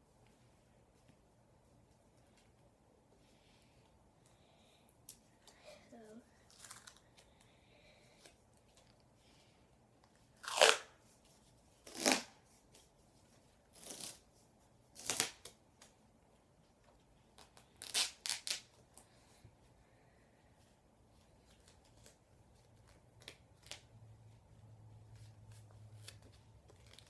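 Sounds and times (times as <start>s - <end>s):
duct tape ripping off roll: 10.4s - 11.0s, 11.8s - 12.4s, 13.7s - 14.2s, 15.0s - 15.6s, 17.4s - 18.8s.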